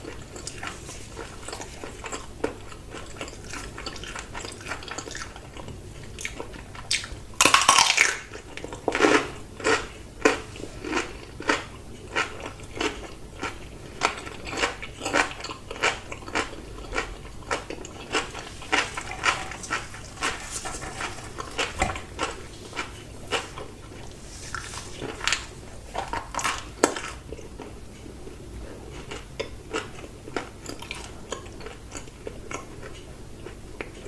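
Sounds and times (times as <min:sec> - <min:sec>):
wet chewing: 0:00.0 - 0:27.8
loud crunching bite: 0:06.2 - 0:08.3.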